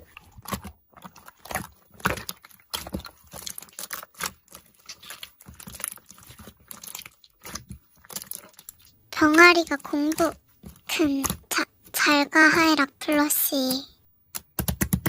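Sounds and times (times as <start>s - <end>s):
slime squished by hand: 0.0s - 11.7s.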